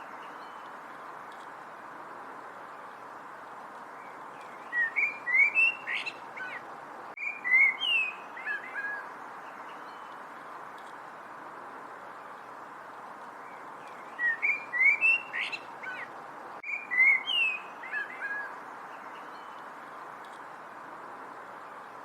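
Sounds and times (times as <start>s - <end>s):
background hiss: 0.0s - 22.0s
songbird chirping: 3.8s - 11.0s, 13.2s - 20.6s.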